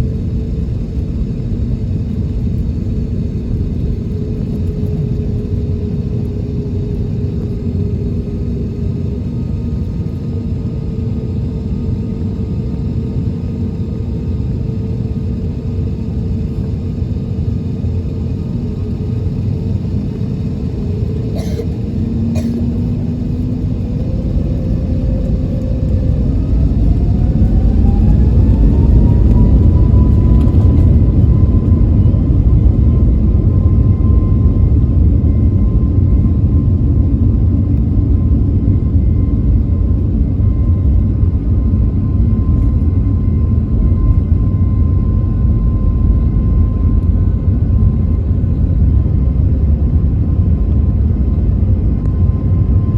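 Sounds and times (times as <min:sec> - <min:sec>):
deep engine rumble: 0:00.0 - 0:52.9
jet engines spooling up: 0:16.6 - 0:49.7.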